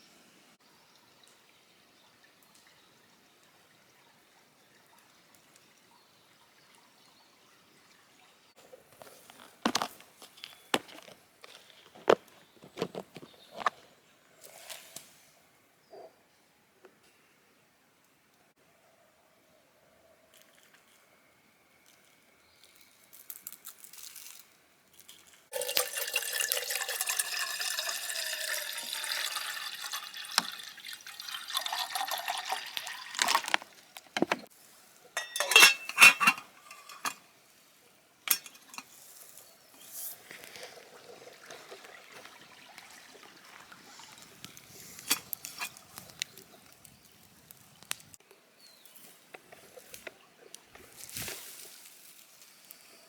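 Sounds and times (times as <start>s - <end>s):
water pouring into container: 25.5s - 34.0s, 40.2s - 46.8s.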